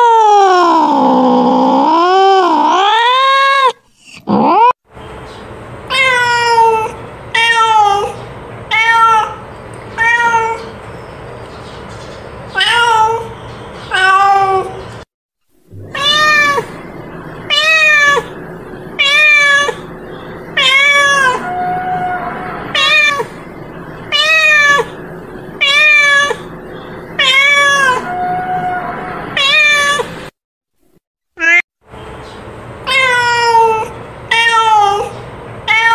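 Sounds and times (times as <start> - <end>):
cat meowing: 0.0 - 4.7, 5.9 - 10.7, 12.6 - 13.3, 13.9 - 14.8, 15.8 - 16.8, 17.5 - 18.3, 19.0 - 19.9, 20.6 - 23.4, 24.0 - 25.0, 25.6 - 26.5, 27.2 - 30.1, 31.4 - 31.6, 32.9 - 35.9.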